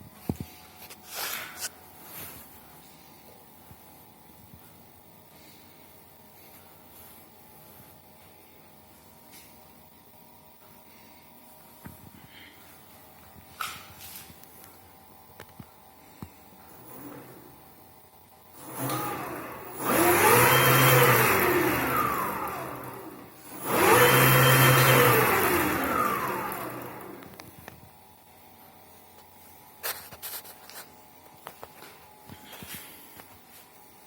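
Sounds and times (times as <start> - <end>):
electric motor whine: 18.6 - 27.5.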